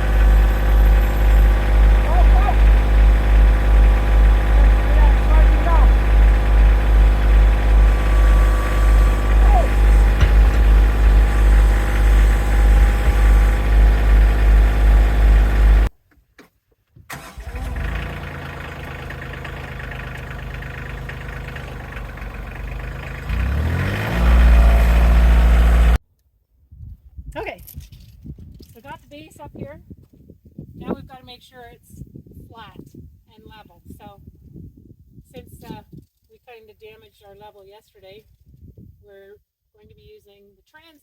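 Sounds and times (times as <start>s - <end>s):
engine revving: 0.0s - 15.9s, 17.2s - 26.0s
tractor engine pulsing: 0.0s - 15.9s, 17.1s - 26.0s.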